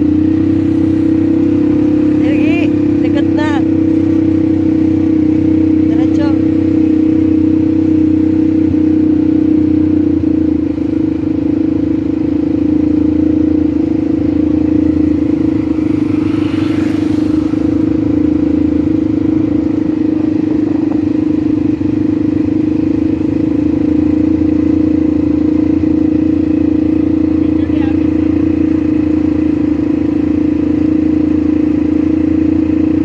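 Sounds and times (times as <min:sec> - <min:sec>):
atv engine running: 0:00.0 - 0:33.0
brief rushing noise: 0:15.3 - 0:18.5.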